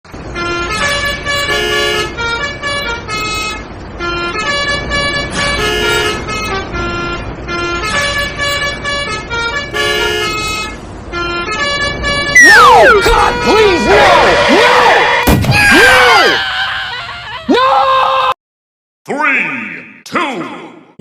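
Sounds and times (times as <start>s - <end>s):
musical vehicle horn: 0.1s - 15.3s.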